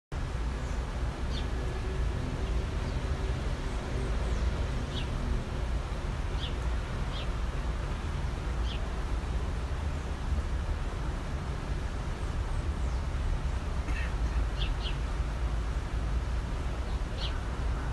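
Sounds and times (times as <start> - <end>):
bird chirping: 6.4 - 7.3, 16.9 - 17.4.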